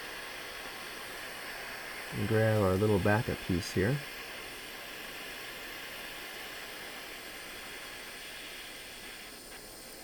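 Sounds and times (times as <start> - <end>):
torch flame hissing: 0.0 - 10.0.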